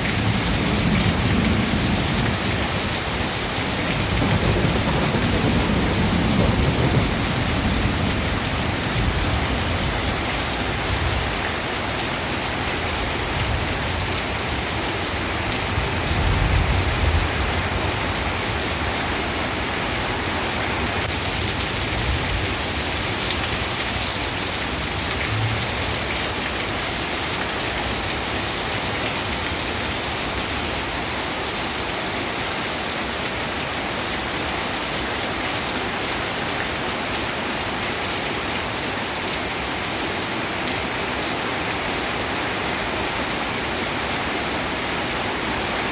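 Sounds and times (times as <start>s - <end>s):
steady rain falling: 0.0s - 45.9s
thunder rumbling: 0.2s - 10.2s, 24.6s - 26.4s.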